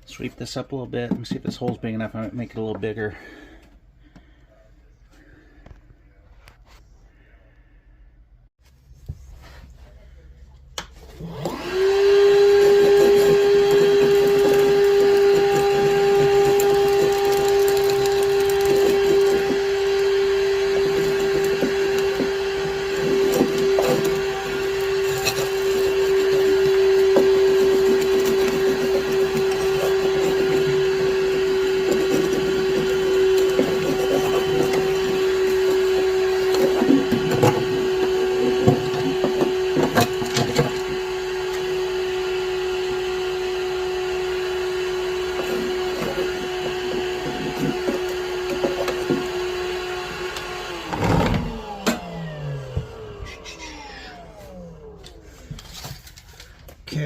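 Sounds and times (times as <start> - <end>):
power tool cutting plywood: 11.2 - 55.5
wood crackling: 13.8 - 20.0.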